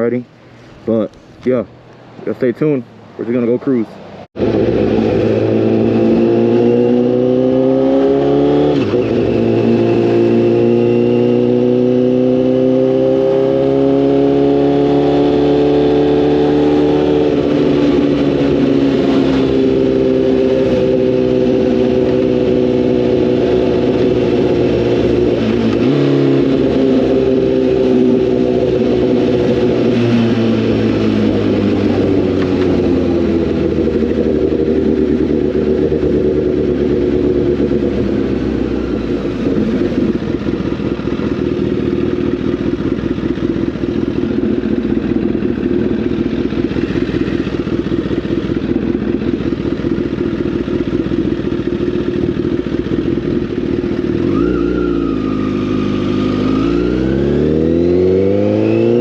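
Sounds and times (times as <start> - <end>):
motorcycle engine running: 4.4 - 59.0.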